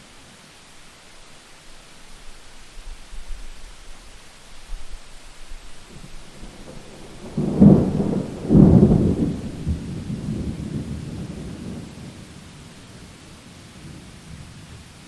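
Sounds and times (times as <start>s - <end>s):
steady rain: 0.0s - 15.0s
thunder clap and rumble: 6.0s - 14.9s.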